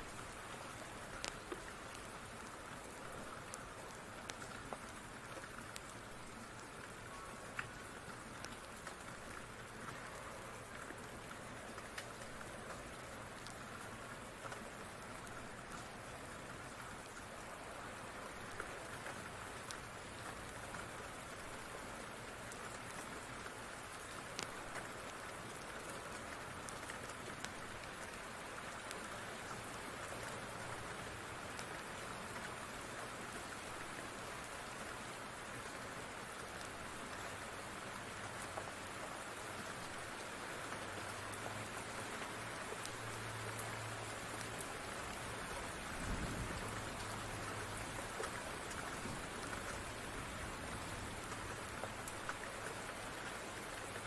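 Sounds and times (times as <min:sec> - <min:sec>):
steady rain falling: 0:00.0 - 0:54.0
faint sharp ticks: 0:01.2 - 0:02.1, 0:24.3 - 0:24.9.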